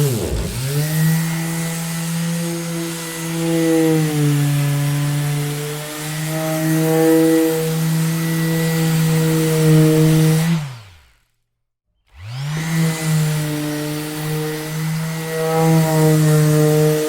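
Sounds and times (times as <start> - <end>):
electric orbital sander running: 0.0 - 11.2, 12.1 - 17.0.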